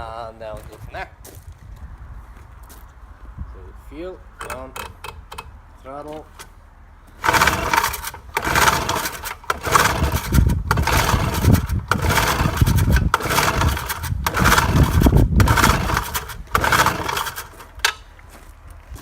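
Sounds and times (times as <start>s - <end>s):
outboard engine recoil pull-starting: 7.2s - 18.0s.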